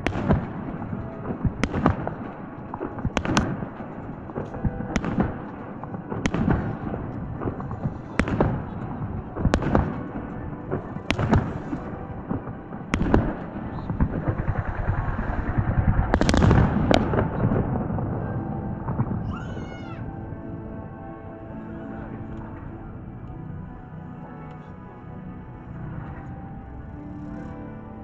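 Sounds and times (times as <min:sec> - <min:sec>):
fireworks bursting with bangs: 0:00.0 - 0:19.3.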